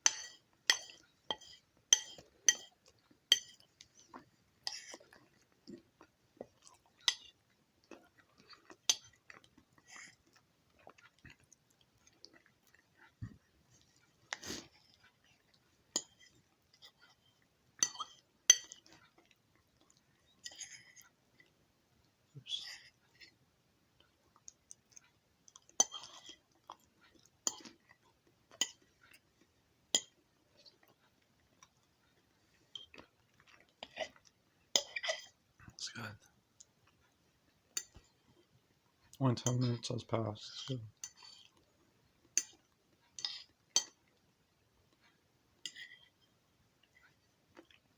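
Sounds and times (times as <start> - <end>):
person chewing with mouth smacks: 2.0 - 21.5, 24.0 - 29.4, 30.0 - 35.4, 46.8 - 47.9.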